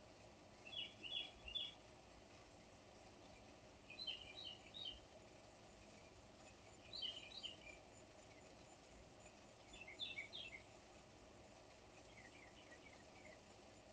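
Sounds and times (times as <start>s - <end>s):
faint bird chirping: 0.0s - 13.9s
steady low hiss: 0.0s - 13.9s.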